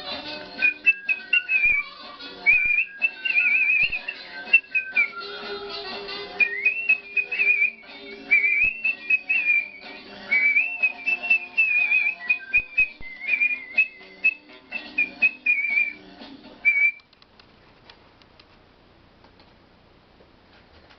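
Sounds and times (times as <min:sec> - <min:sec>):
person whistling a melody: 0:00.5 - 0:05.6, 0:06.4 - 0:16.0, 0:16.6 - 0:17.0.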